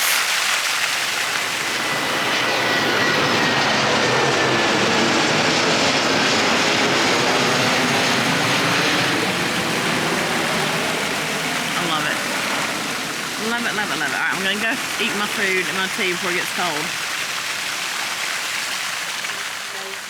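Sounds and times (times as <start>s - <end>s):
aircraft passing overhead: 0.0s - 19.7s.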